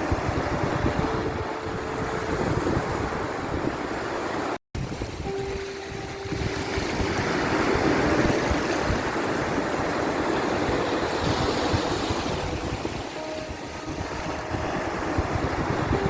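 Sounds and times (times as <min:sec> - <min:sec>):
sea waves washing on shore: 0:00.0 - 0:16.0
faint held tones: 0:05.2 - 0:16.0.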